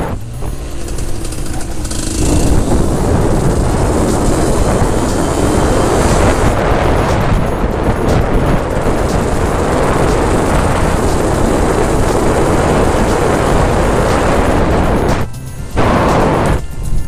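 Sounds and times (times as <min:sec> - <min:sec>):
two-stroke motorcycle engine running: 0:00.0 - 0:17.0
wind rumble on microphone: 0:00.0 - 0:17.0.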